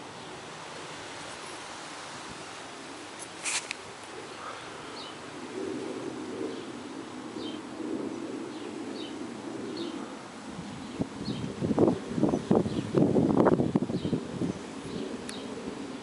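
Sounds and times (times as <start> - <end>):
bird low call: 4.2 - 6.8, 7.4 - 11.6.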